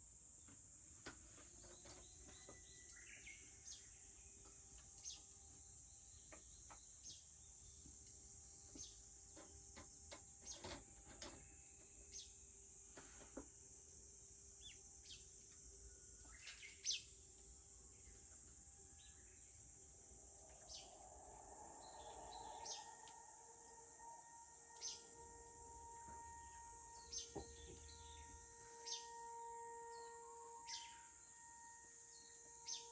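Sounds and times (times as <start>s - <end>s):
bird chirps: 1.6s - 8.1s, 14.6s - 17.2s, 17.9s - 32.9s
high-pitched insect drone: 13.6s - 32.9s.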